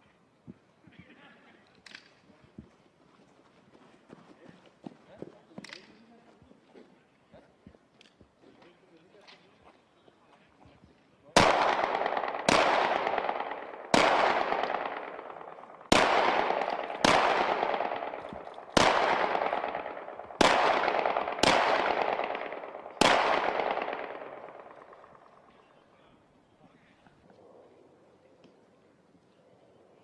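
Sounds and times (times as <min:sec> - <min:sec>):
rifle shots with echo: 0:11.4 - 0:25.6.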